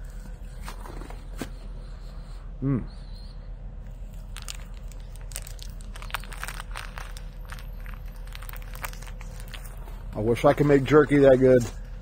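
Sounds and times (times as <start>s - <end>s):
person chewing jerky: 4.0s - 10.2s.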